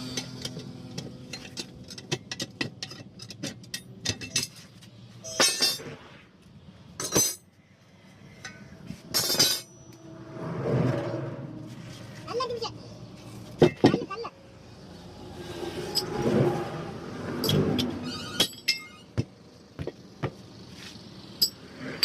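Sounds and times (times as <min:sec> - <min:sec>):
hand tools clinking and tapping: 0:00.0 - 0:05.9, 0:07.0 - 0:07.5, 0:08.4 - 0:10.0, 0:17.4 - 0:20.4, 0:21.4 - 0:21.6.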